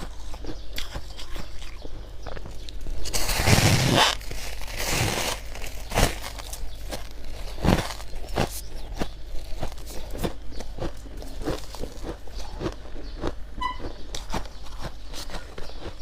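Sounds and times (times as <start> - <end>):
chewing crunchy frost: 0.0 - 16.0
brief high tone: 13.6 - 13.9.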